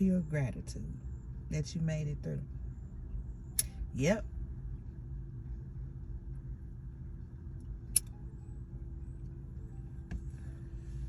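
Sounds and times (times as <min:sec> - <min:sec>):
faint hum: 0:00.0 - 0:11.0
sharp click: 0:07.9 - 0:08.1.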